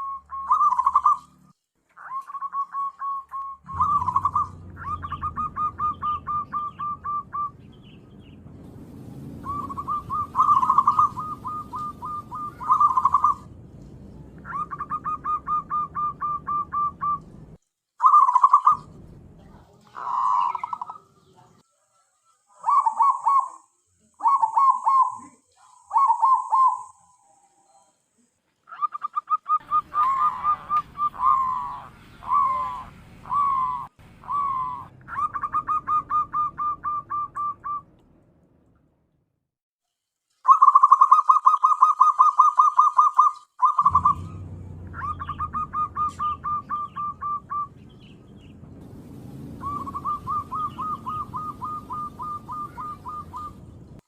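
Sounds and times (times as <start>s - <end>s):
dove cooing: 0.0s - 1.4s, 2.0s - 7.6s, 9.4s - 13.5s, 14.4s - 17.3s, 18.0s - 19.0s, 19.6s - 21.3s, 22.5s - 27.1s, 28.7s - 37.8s, 40.5s - 47.8s, 49.6s - 53.8s
low background rumble: 3.6s - 17.6s, 18.8s - 21.6s, 30.6s - 39.4s, 43.8s - 54.0s.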